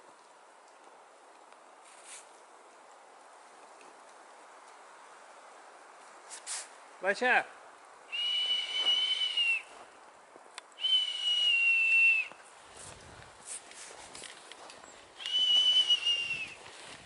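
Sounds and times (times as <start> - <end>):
high whistles calling dog: 8.1 - 9.7, 10.8 - 12.4, 15.2 - 16.6.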